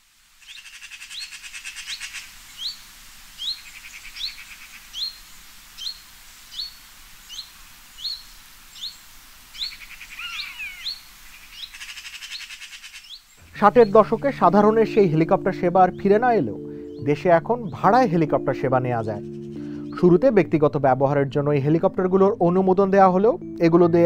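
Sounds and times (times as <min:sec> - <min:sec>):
rapid buzzy bird trill: 0:03.4 - 0:14.2, 0:19.1 - 0:20.0
bird rising call note: 0:10.1 - 0:11.0.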